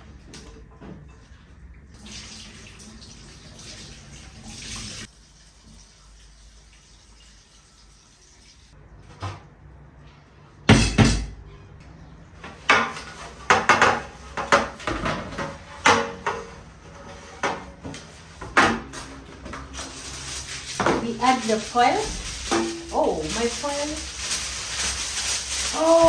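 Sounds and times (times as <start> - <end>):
dishes and utensils clattering: 10.7 - 11.6, 12.4 - 24.0.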